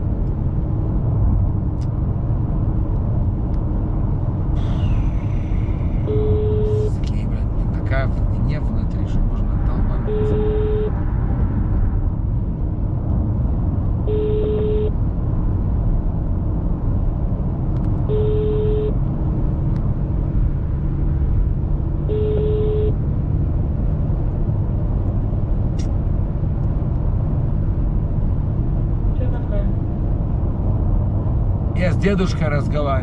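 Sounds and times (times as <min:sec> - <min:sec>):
car engine and road noise: 0:00.0 - 0:33.0
phone ringback beep: 0:22.1 - 0:22.9.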